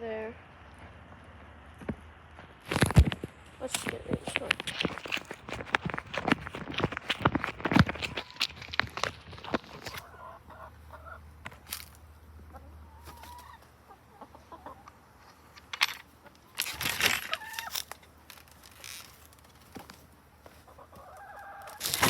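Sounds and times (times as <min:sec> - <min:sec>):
rustling or knocking noises: 0:01.8 - 0:10.1, 0:15.2 - 0:20.7, 0:21.6 - 0:22.0
chickens clucking: 0:02.8 - 0:22.0.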